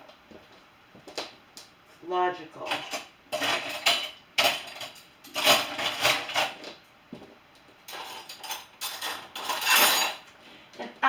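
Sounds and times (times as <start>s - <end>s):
dishes and cutlery clattering: 2.7s - 6.7s, 7.9s - 10.3s.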